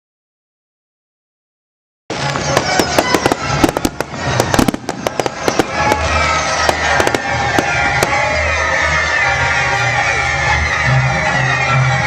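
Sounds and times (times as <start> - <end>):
fireworks cracking and popping: 2.1 - 8.6
loud funfair music with bass: 2.1 - 12.0.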